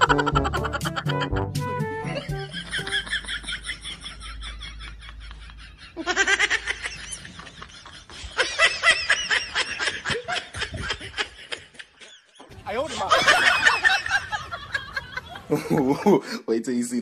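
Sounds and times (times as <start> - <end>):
high-pitched giggling laughter: 2.2 - 12.4.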